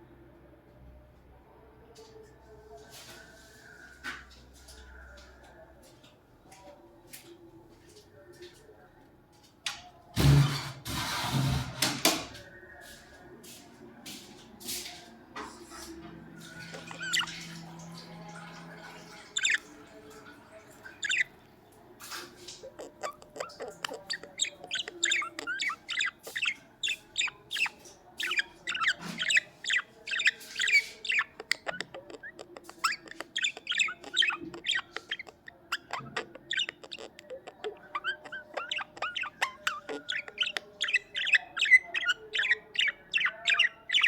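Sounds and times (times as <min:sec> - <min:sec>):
budgerigars chirping: 0:15.7 - 0:44.0.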